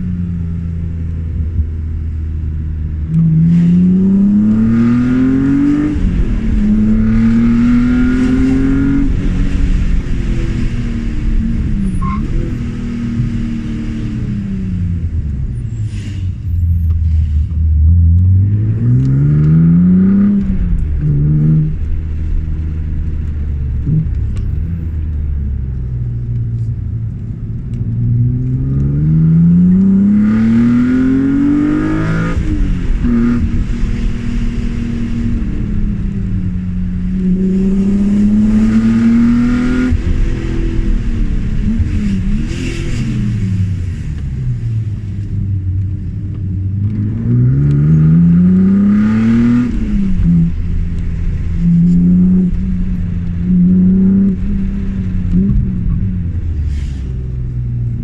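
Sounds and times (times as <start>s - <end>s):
car engine revving hard: 3.1s - 15.0s, 28.4s - 35.8s, 37.0s - 44.1s, 46.9s - 56.0s.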